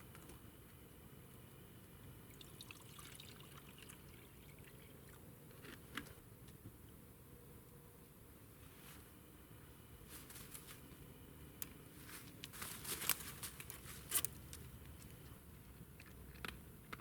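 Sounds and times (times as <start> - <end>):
light rustling and crackling: 10.0 - 11.0, 11.6 - 15.4.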